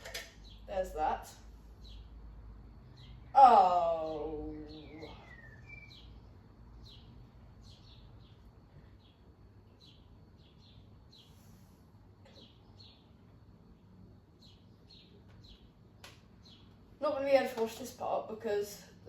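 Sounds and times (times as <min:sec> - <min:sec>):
quiet background hum: 0:00.0 - 0:19.0
faint bird chirps: 0:02.9 - 0:16.8.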